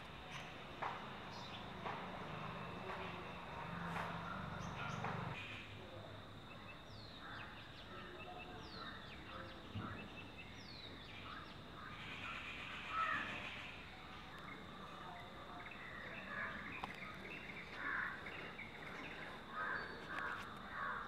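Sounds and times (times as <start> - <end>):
bird chirps: 0.2 - 5.7.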